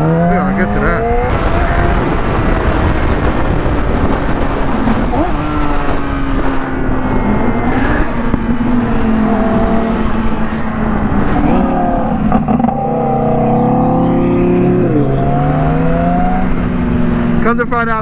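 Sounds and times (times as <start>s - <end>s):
wind rush over microphone: 0.7s - 12.8s
motorcycle engine running: 1.3s - 11.4s.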